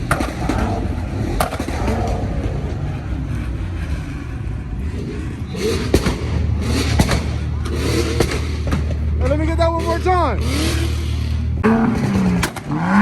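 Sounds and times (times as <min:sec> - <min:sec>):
car engine rumbling: 0:00.0 - 0:13.0
sharp engine pop: 0:11.9 - 0:12.7.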